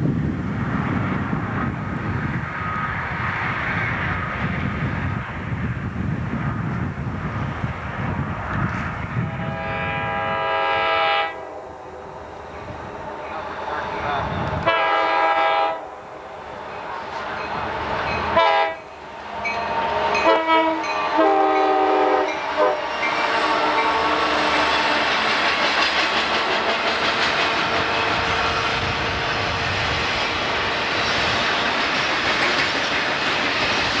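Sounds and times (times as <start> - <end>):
train rolling past: 0.0 - 34.0
locomotive air horn blasts: 9.2 - 11.8, 14.6 - 16.0, 18.3 - 18.9, 20.2 - 25.2.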